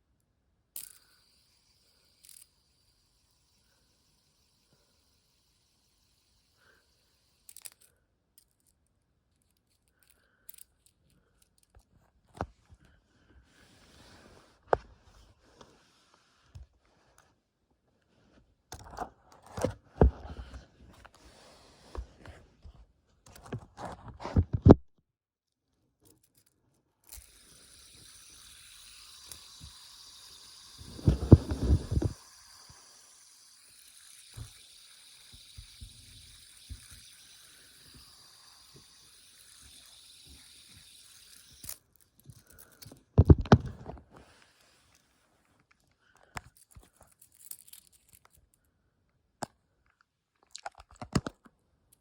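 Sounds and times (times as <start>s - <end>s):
fidget spinner clicks and knocks: 0.7s - 8.8s, 26.0s - 44.1s.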